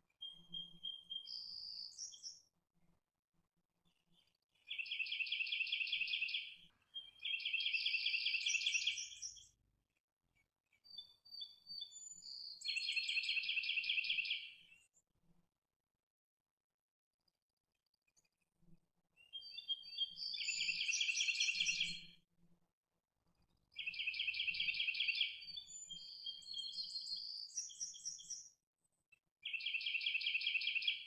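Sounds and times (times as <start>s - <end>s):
songbird singing trills: 0.2s - 2.3s, 4.7s - 9.4s, 10.9s - 14.4s, 19.3s - 22.1s, 23.8s - 28.5s, 29.4s - 31.0s.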